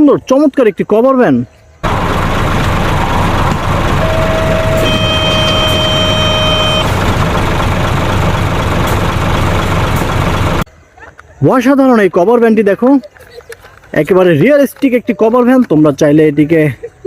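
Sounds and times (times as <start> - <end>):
truck engine running: 1.8 - 10.7
horn-like tone: 4.0 - 6.9.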